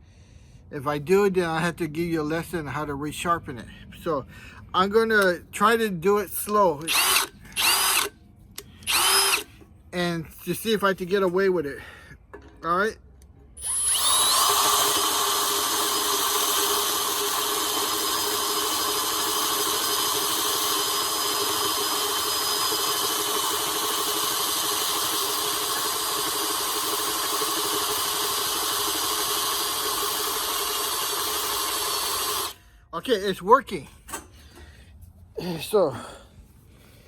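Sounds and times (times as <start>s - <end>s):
electric drill boring through metal: 6.9s - 8.1s, 8.8s - 9.5s, 13.6s - 32.6s.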